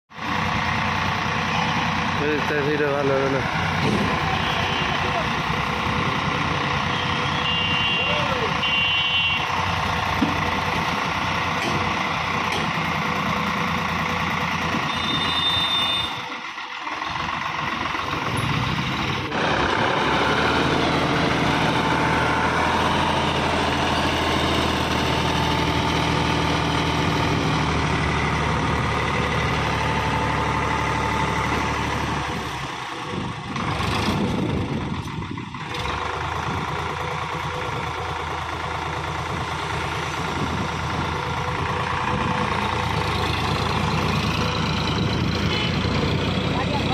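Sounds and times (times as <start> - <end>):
tractor diesel engine running: 0.1 - 46.9.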